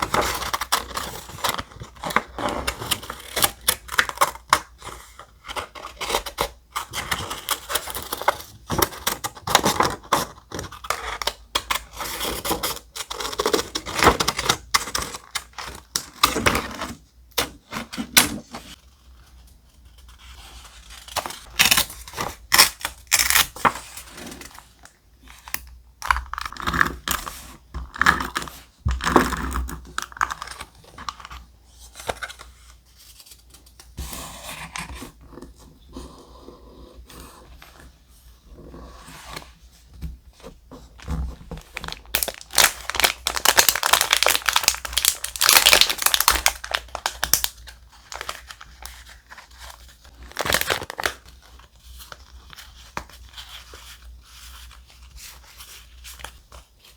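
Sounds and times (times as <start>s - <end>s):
paper and stickers crinkling: 40.8s - 56.9s.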